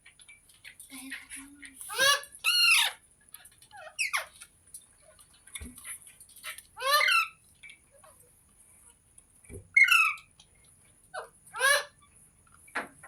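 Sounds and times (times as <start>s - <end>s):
parrot squawking: 1.9s - 3.0s, 6.8s - 7.4s, 9.8s - 10.2s, 11.2s - 12.0s.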